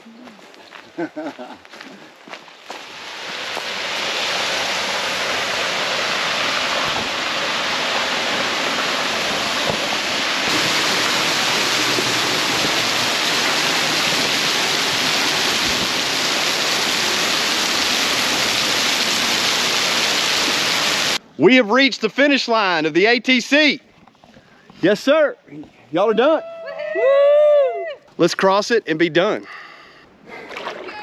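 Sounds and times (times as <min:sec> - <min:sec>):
waterfall rushing: 0:02.8 - 0:21.2.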